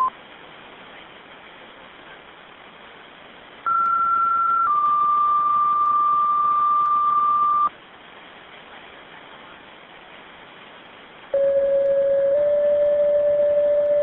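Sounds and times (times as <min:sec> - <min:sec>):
radio hiss: 0:00.0 - 0:14.0
radio two-tone page: 0:03.7 - 0:07.7, 0:11.4 - 0:14.0.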